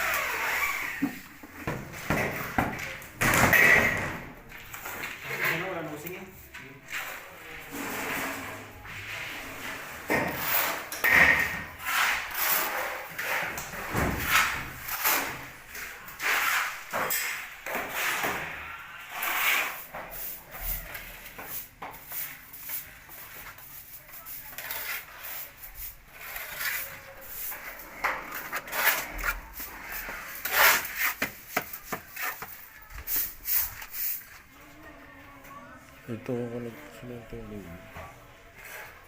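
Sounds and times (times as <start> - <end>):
scraping and rubbing on wood: 6.8 - 34.5.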